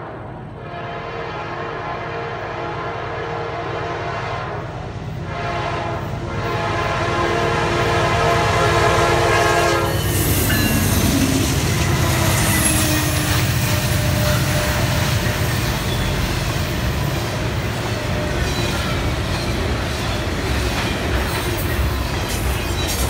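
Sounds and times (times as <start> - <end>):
diesel locomotive engines: 0.0 - 23.0
wheels rumbling on rail: 0.0 - 23.0
locomotive air horn blasts: 0.6 - 15.4.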